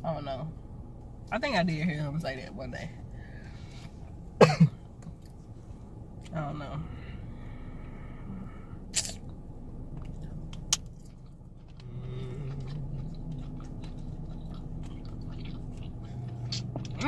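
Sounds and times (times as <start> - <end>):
low steady hum: 0.0 - 17.0
person chewing food: 9.0 - 17.0.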